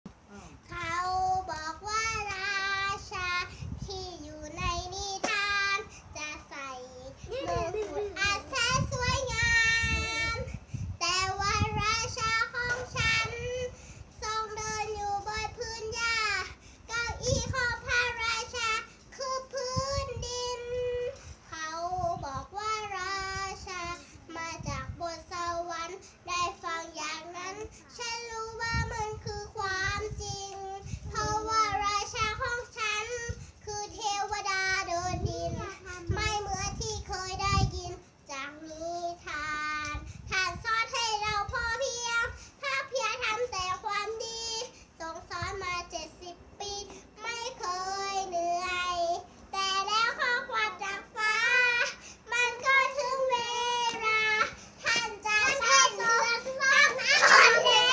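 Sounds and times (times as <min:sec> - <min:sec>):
child singing: 0:00.6 - 0:57.9
child singing long notes: 0:06.5 - 0:16.0.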